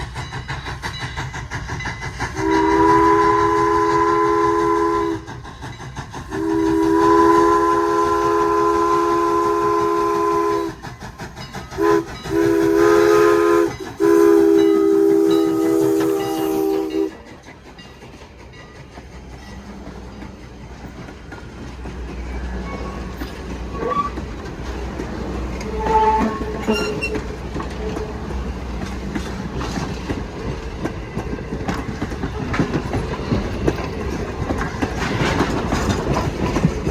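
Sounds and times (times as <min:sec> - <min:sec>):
low rumble of train: 0:00.0 - 0:36.9
train horn chime blasts: 0:02.4 - 0:05.3, 0:06.4 - 0:10.8, 0:11.8 - 0:17.2, 0:25.6 - 0:28.2.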